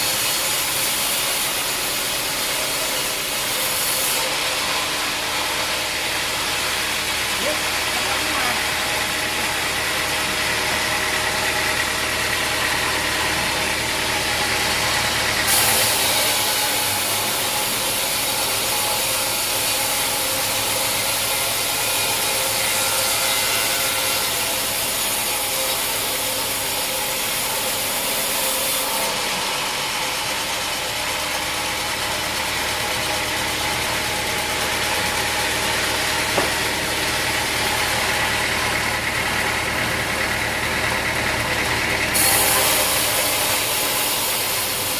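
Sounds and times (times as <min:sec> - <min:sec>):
sawmill engine running: 0:00.0 - 0:44.9
high hiss of sawing wood: 0:15.4 - 0:29.4, 0:42.2 - 0:44.9.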